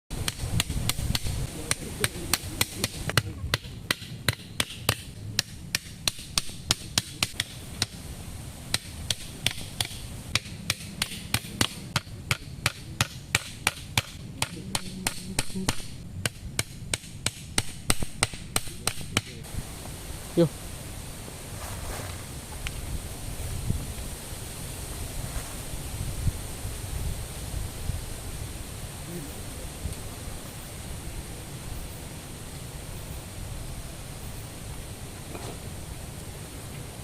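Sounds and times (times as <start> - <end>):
low steady rumble: 0.1 - 37.0
blade chopping wood: 0.2 - 8.0, 8.7 - 19.4.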